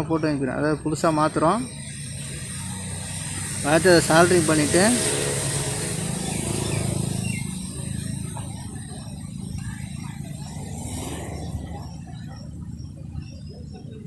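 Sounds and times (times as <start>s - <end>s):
low mechanical hum: 0.9s - 14.0s.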